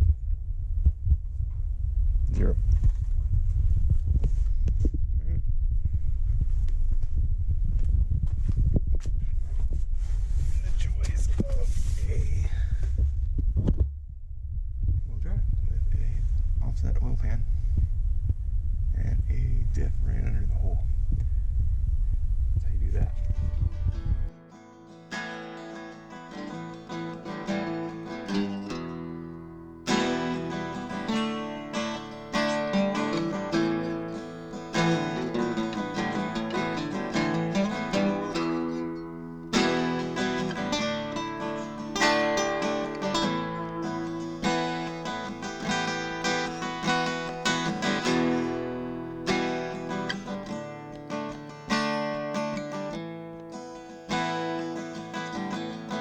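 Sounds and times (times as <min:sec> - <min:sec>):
acoustic guitar plucked and strummed: 0:23.2 - 0:56.0.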